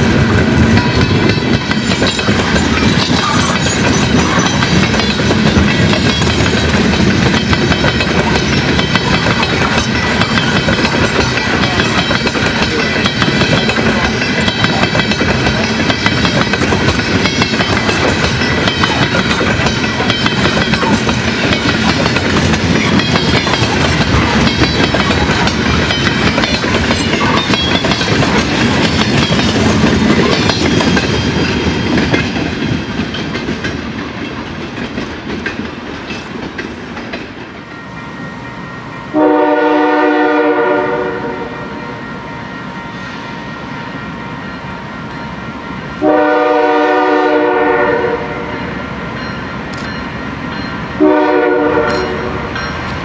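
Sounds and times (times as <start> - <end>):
train cars rolling over rail joints: 0.0 - 37.6
diesel locomotive horn blasts: 39.1 - 42.0, 46.0 - 48.7, 51.0 - 52.6.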